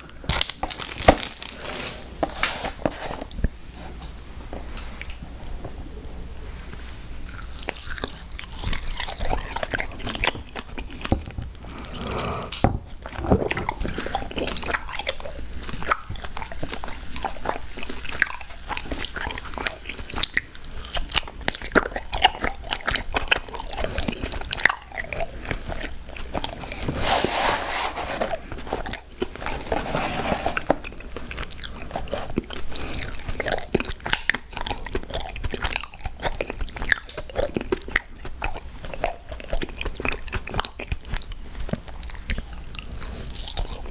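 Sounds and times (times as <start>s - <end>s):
cookie crunching: 0.0s - 3.4s, 7.2s - 43.9s
wet chewing: 7.2s - 27.0s, 28.1s - 29.9s, 30.6s - 43.9s.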